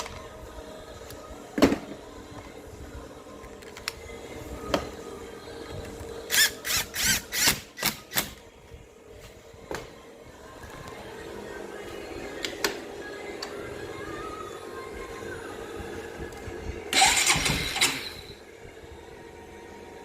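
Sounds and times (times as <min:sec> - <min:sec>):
power tool short bursts: 0:16.9 - 0:18.3.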